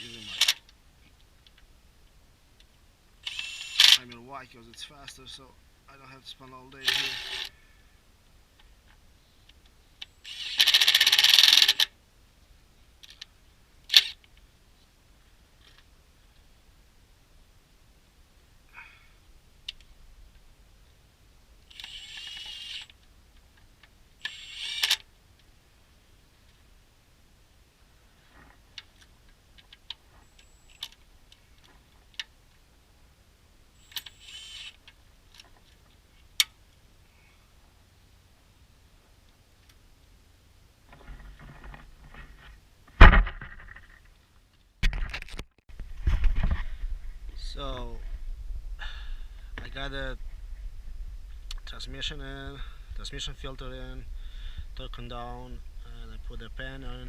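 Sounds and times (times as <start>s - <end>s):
power tool driving a bolt: 0.0s - 0.6s, 3.2s - 4.0s, 6.8s - 7.5s, 10.2s - 11.9s, 13.9s - 14.2s, 21.7s - 23.0s, 24.2s - 25.0s, 33.8s - 34.8s
small metallic clicks: 33.8s - 36.6s.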